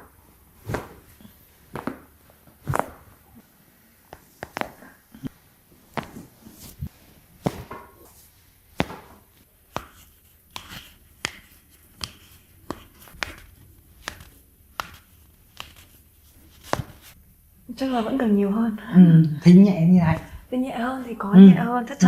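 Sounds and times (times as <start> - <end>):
hands tapping on a body: 4.1 - 5.3, 5.9 - 6.3, 8.8 - 15.9.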